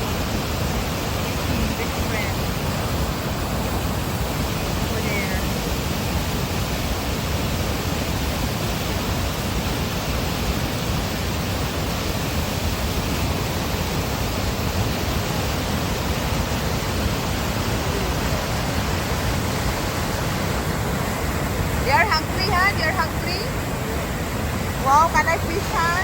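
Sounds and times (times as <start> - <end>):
fast-flowing river water rushing: 0.0 - 26.0.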